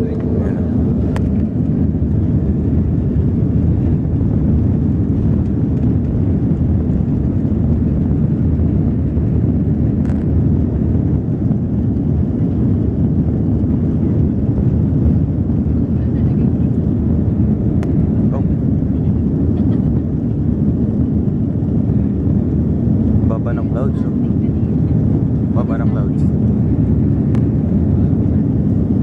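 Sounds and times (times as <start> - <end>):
jet engines rumbling: 0.0 - 29.0.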